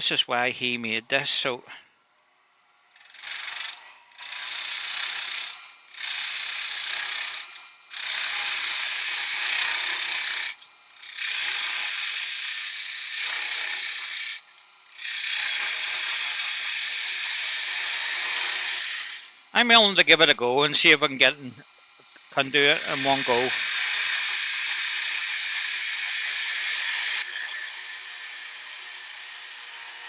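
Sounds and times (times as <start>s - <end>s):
lathe gouge cutting wood hiss: 3.0s - 19.4s, 22.0s - 30.0s.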